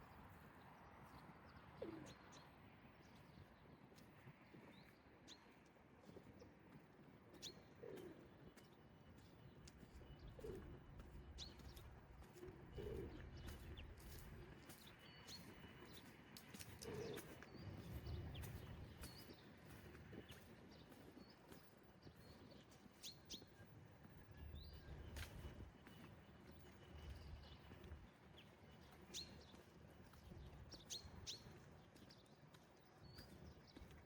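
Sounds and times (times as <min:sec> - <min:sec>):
pigeon cooing: 0:12.7 - 0:13.2.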